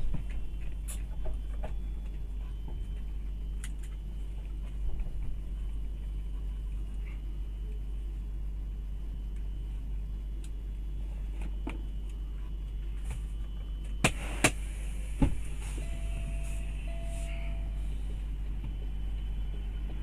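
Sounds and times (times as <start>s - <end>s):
faint steady tone: 14.8s - 20.0s.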